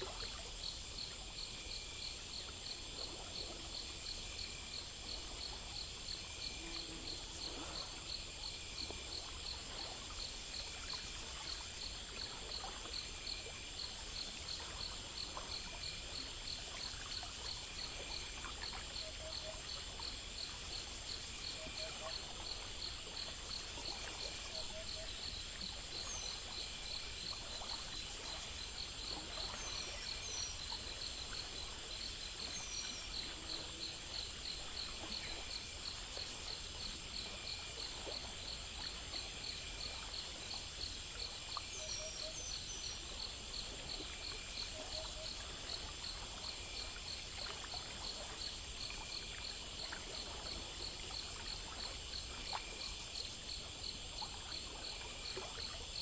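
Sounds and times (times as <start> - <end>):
crickets and insects chirping: 0.0 - 56.0
stream water trickling: 0.0 - 56.0
high insect buzz: 4.2 - 12.7.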